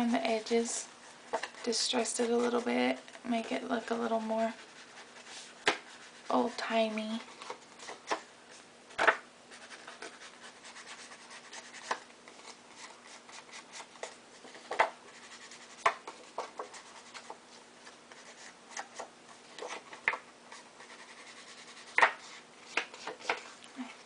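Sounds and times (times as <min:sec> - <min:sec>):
ink pad rubbing on card: 0:03.6 - 0:08.1, 0:09.5 - 0:17.4, 0:19.6 - 0:23.4.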